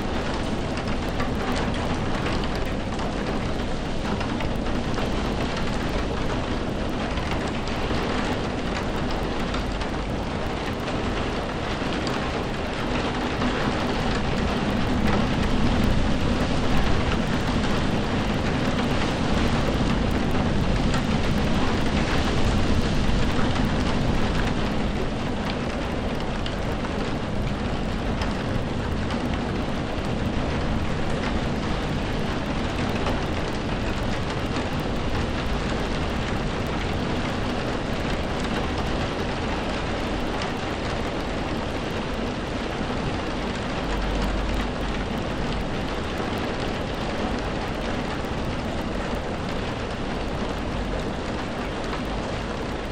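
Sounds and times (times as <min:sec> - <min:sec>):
heavy rain falling: 0:00.0 - 0:52.9
low rumble of thunder: 0:00.0 - 0:52.9.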